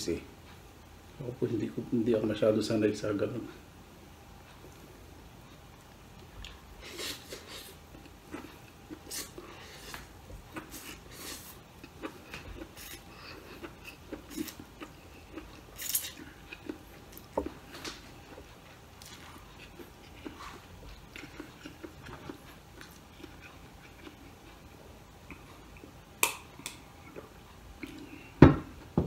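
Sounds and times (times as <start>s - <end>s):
person chewing with wet smacks: 5.8s - 28.3s.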